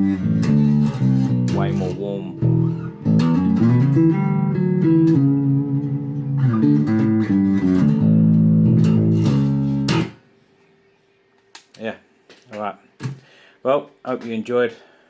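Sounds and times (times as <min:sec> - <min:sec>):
electric bass sustained notes: 0:00.0 - 0:10.2.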